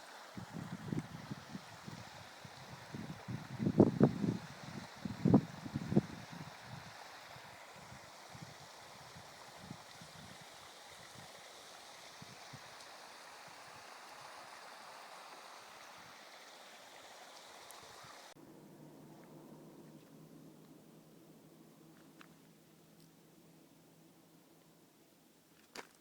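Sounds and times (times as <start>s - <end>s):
running water rushing: 0.0s - 18.4s
quiet hum: 18.1s - 25.6s.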